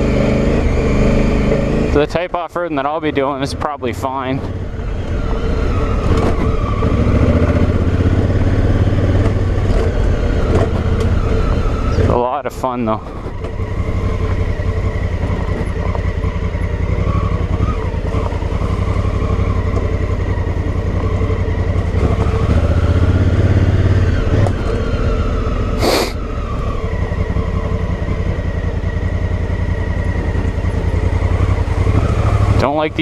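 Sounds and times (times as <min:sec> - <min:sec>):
motorcycle engine running: 0:00.0 - 0:33.0
hissing swish: 0:25.8 - 0:26.2.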